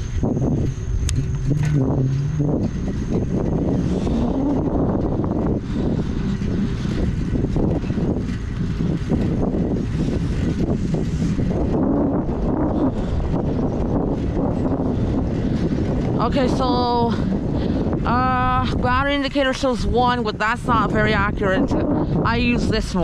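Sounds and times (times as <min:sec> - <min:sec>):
bicycle tyre and road noise: 0:00.0 - 0:23.0
wind rushing over microphone: 0:00.0 - 0:23.0.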